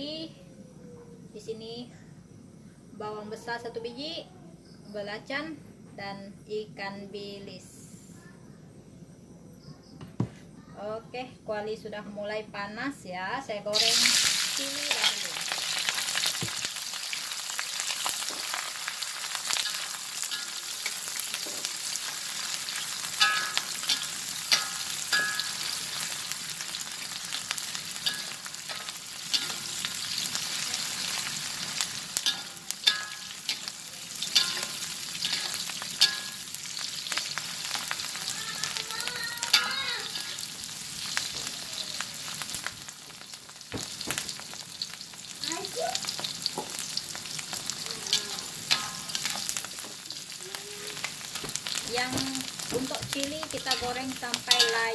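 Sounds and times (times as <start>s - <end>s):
chillies sizzling in hot oil: 12.5s - 54.9s
metal spatula scraping a wok: 19.5s - 38.2s, 47.5s - 49.9s, 53.4s - 54.9s.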